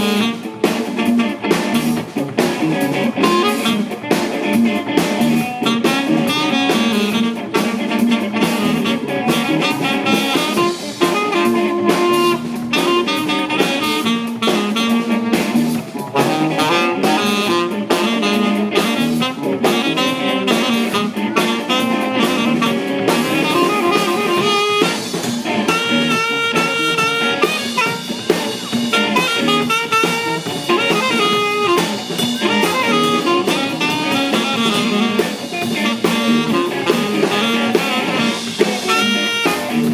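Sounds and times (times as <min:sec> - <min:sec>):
band playing soul jazz: 0:00.0 - 0:39.9
drum kit: 0:00.0 - 0:39.9
horn line: 0:00.0 - 0:39.9.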